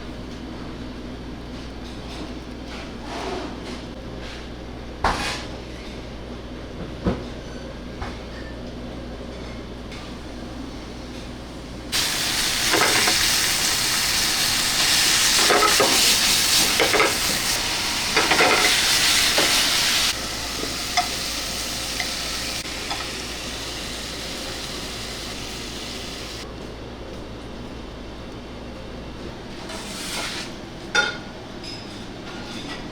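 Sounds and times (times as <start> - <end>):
loud sizzle-like hissing: 11.9 - 26.4
kitchen clatter: 12.0 - 23.2.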